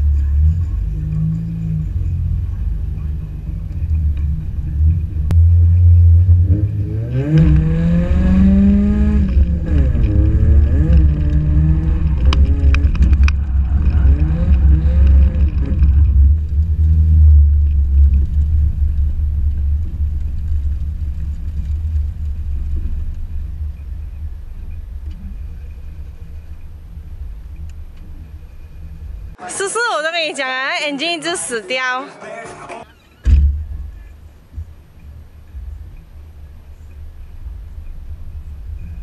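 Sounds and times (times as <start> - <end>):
car engine revving: 0.0 - 29.4, 33.3 - 39.0.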